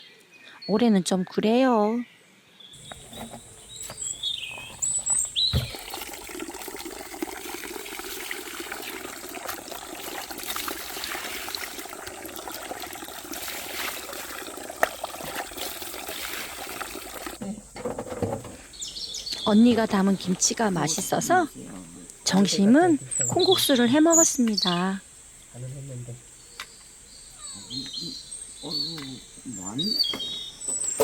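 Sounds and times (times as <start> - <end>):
bird chirps: 2.8 - 5.9, 18.7 - 21.1, 23.0 - 31.0
water running and splashing: 2.8 - 31.0.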